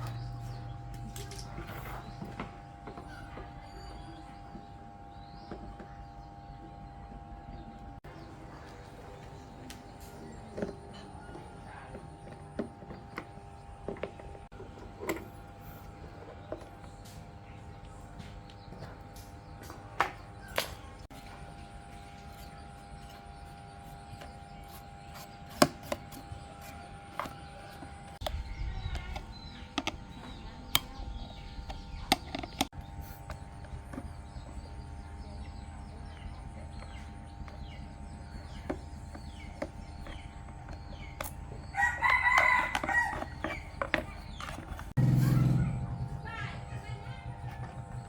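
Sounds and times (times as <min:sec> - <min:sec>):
sharp clicks and knocks: 0:25.5 - 0:34.2
rooster crowing: 0:41.7 - 0:43.6.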